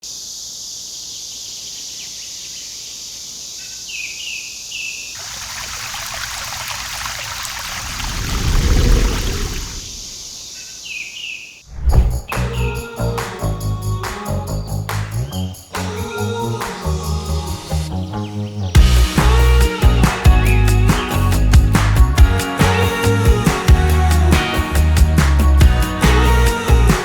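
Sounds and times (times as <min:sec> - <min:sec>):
insects buzzing: 0:00.0 - 0:27.0
rushing water: 0:05.2 - 0:10.3
bird chirping: 0:08.8 - 0:23.2
background music: 0:12.4 - 0:27.0.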